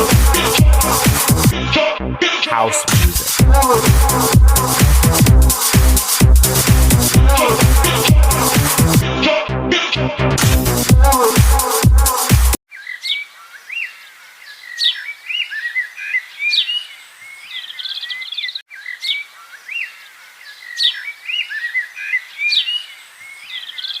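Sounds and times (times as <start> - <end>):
songbird singing: 12.7 - 24.0.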